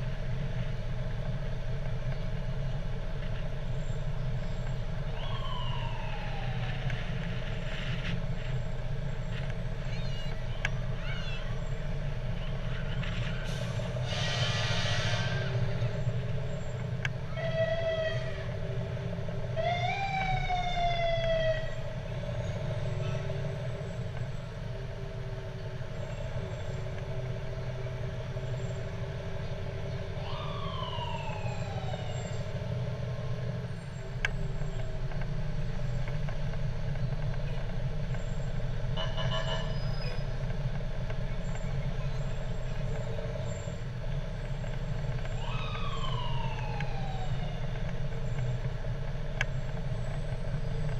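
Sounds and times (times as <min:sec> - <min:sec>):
truck engines running: 0:00.0 - 0:50.9
fire truck sirens wailing: 0:02.5 - 0:50.9
horn blast: 0:14.0 - 0:15.6.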